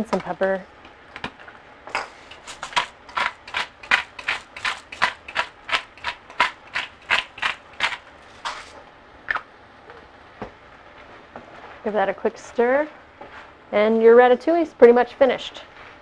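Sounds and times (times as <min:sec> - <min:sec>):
pepper mill grinding: 0:01.9 - 0:08.8.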